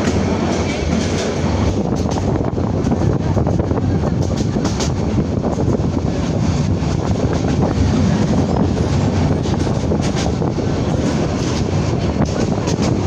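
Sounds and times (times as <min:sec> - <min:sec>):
train wheels rumbling: 0:00.0 - 0:13.0
wind on microphone: 0:00.0 - 0:13.0.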